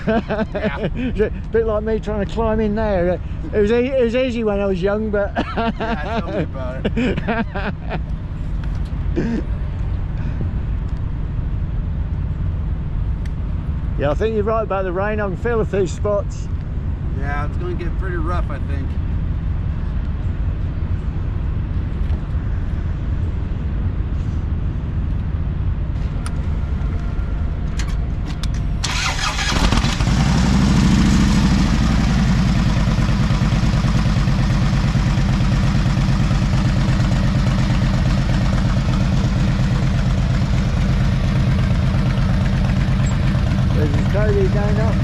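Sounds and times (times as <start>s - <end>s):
car engine revving: 28.8s - 33.5s.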